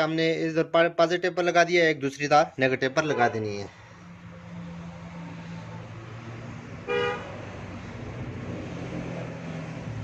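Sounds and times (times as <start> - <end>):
vehicle horn honk: 3.0 - 3.6, 6.9 - 7.4.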